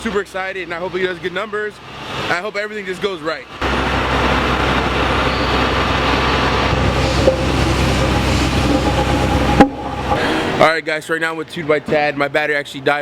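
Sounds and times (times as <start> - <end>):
vehicle engine humming: 3.6 - 10.6.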